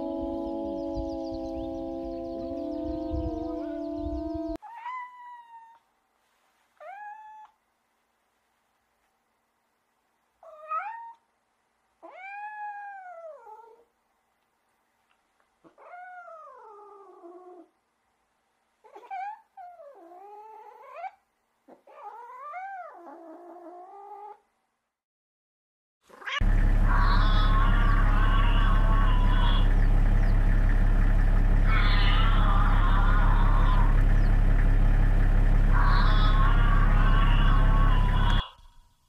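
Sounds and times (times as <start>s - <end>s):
cat meowing: 4.6s - 5.8s, 6.8s - 7.6s, 10.4s - 11.2s, 12.0s - 13.8s, 26.2s - 29.7s, 31.6s - 34.0s, 35.7s - 38.6s.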